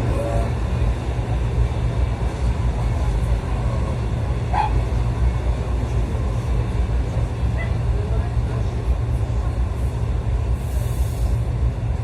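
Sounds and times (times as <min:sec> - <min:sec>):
train rumbling inside carriage: 0:00.0 - 0:12.0.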